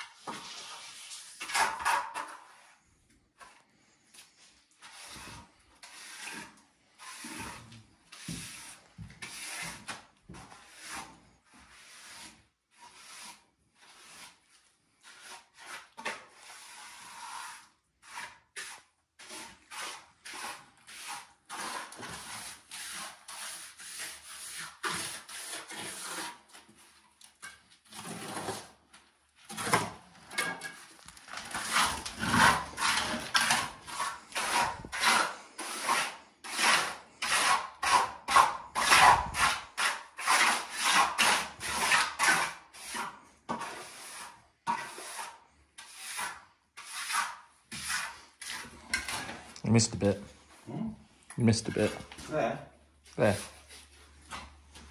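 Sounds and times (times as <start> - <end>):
hand tool scraping rough surface: 0.0 - 50.3, 51.4 - 52.5, 53.1 - 54.9.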